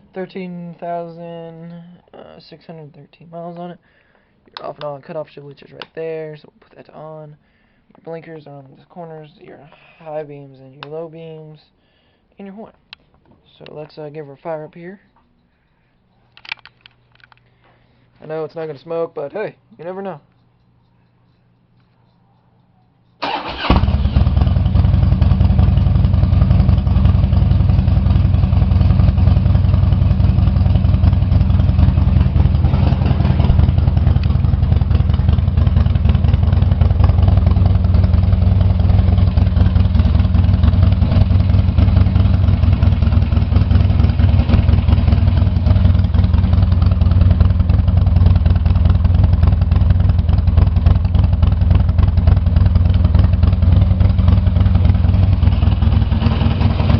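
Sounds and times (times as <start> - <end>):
motorcycle engine starting and idling: 23.2 - 56.9.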